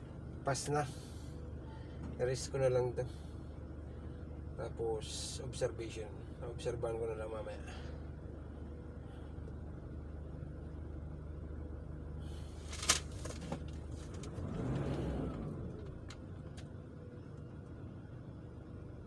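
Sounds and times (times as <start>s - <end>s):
car engine humming: 10.9s - 19.0s.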